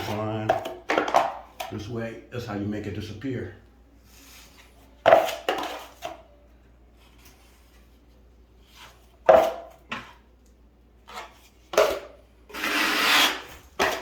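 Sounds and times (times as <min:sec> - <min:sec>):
drywall knife scraping compound: 0:11.1 - 0:14.0.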